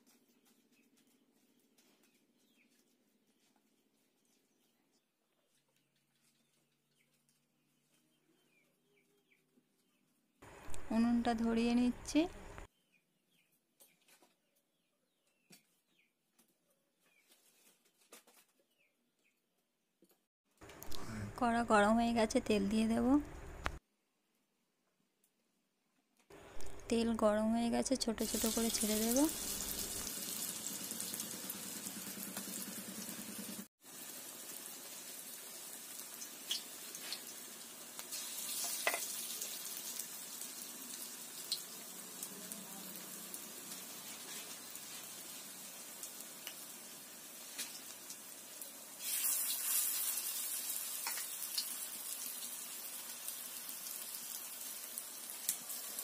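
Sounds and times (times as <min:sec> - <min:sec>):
fritters sizzling in hot oil: 0:28.2 - 0:56.0.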